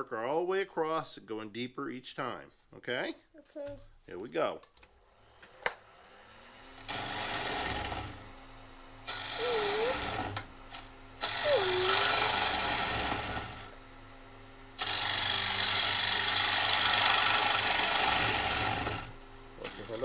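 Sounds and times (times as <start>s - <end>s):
lathe humming: 6.8s - 8.3s, 8.9s - 20.0s
gouge cutting wood: 6.9s - 8.2s, 9.0s - 13.8s, 14.8s - 19.2s.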